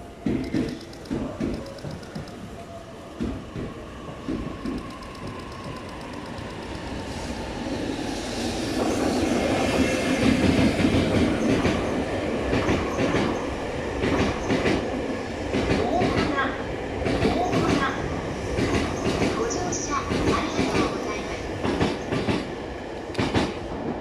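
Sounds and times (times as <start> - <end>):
electric locomotive passing: 0.0 - 24.0.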